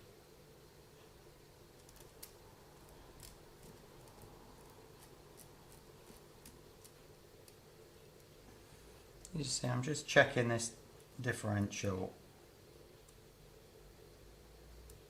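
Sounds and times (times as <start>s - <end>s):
small parts clicking and tapping: 1.8s - 8.4s.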